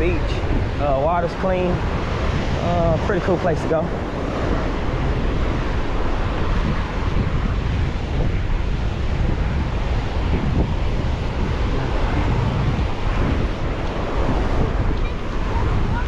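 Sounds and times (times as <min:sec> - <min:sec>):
waves washing onto beach: 0:00.0 - 0:16.0
wind buffeting microphone: 0:00.0 - 0:16.0.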